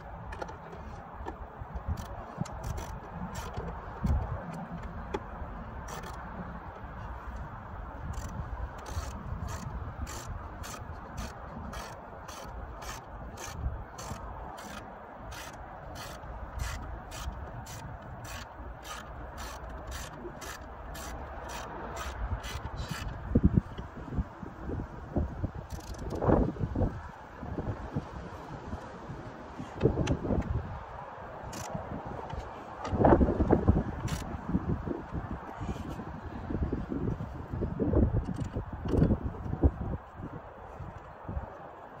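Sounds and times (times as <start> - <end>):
ratchet wrench clicking: 8.0 - 23.2, 25.6 - 26.3, 31.5 - 31.8, 34.0 - 34.3
tools rubbing and handling: 8.0 - 23.2.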